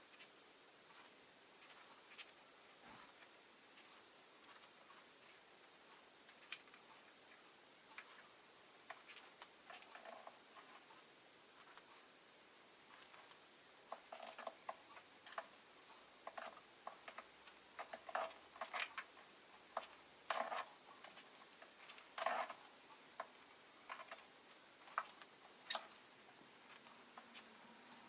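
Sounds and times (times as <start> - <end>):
sharp high bird chirp: 25.7 - 25.9.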